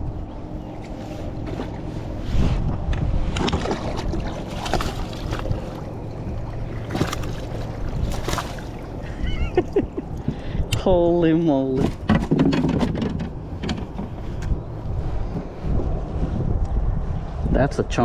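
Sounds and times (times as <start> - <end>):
wind buffeting microphone: 0.0 - 18.0
sharp clicks and knocks: 11.8 - 14.5.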